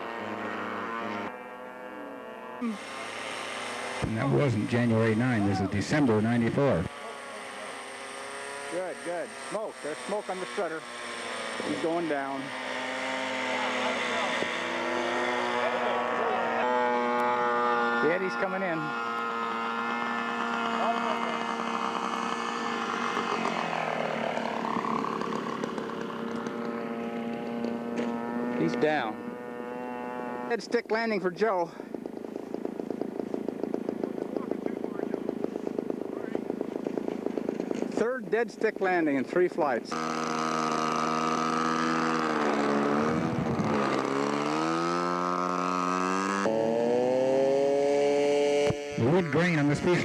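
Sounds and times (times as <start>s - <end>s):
engine at high steady pitch: 0.0s - 50.0s
model airplane propeller drone: 0.0s - 50.0s.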